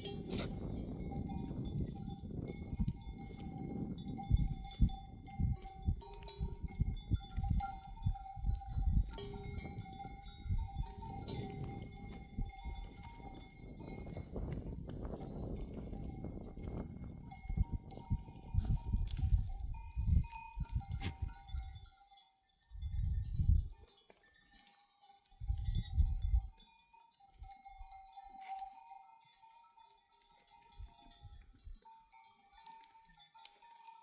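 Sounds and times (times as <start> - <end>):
sheep bells clanking: 0.0 - 34.0.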